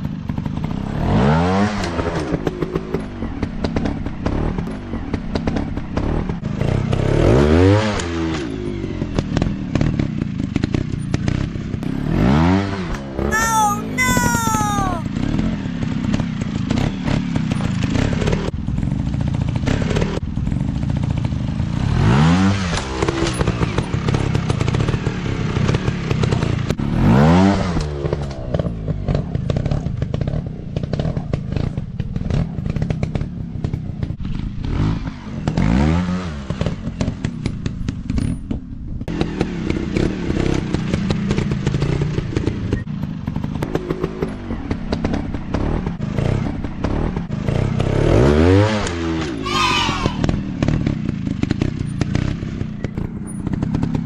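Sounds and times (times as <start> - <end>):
dirt bike engines revving: 49.2 - 51.4.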